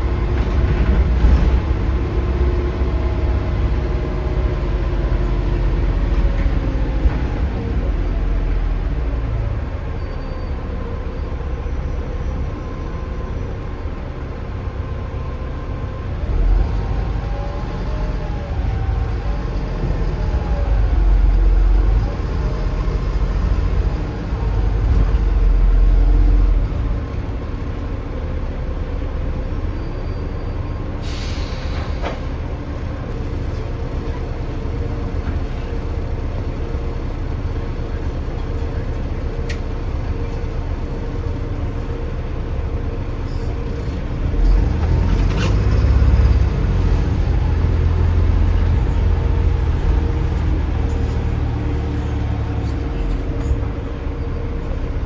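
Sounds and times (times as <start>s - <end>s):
diesel bus engine under load: 0.0s - 55.0s
air brake hiss: 31.0s - 32.3s.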